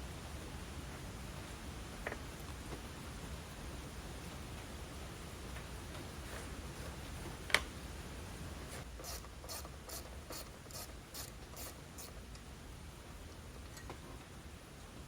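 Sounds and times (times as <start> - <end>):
ratchet wrench rasping: 9.0 - 12.2.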